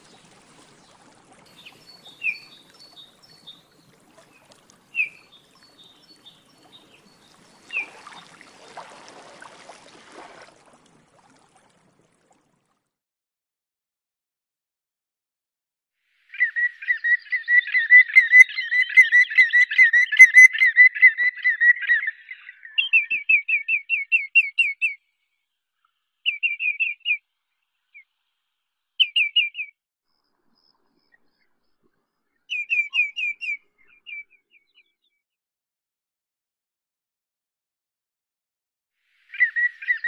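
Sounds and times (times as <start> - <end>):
bird whistling calls: 1.6 - 3.5, 4.9 - 5.3, 7.7 - 8.0, 16.3 - 25.0, 26.3 - 27.2, 29.0 - 29.7, 32.5 - 34.9, 39.3 - 40.0.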